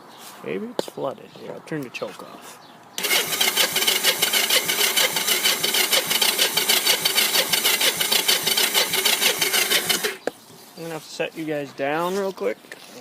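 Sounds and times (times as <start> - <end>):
electric starter cranking engine: 3.0 - 10.2.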